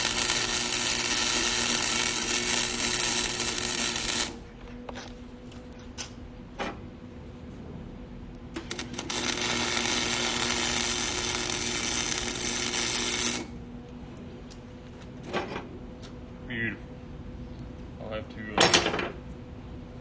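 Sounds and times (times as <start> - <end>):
welding arc noise: 0.0 - 4.5, 8.5 - 13.6
steady hum: 0.0 - 20.0.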